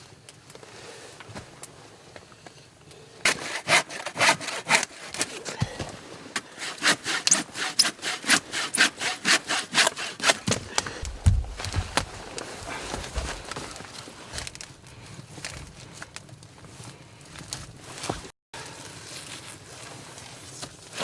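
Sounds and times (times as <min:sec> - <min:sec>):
hand saw cutting wood: 0:03.2 - 0:13.6
low thud: 0:11.0 - 0:13.5.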